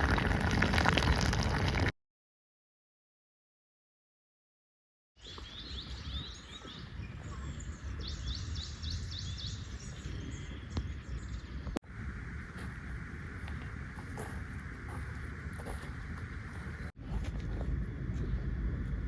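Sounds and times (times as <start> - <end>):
birds chirping: 5.2 - 16.9
low rumble: 10.3 - 19.0.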